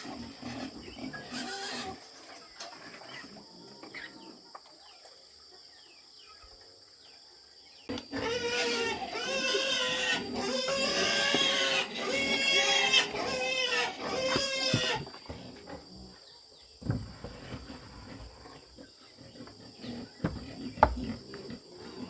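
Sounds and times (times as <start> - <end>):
pig squealing: 0.0 - 2.1, 8.1 - 15.6
short knocks: 20.2 - 21.2.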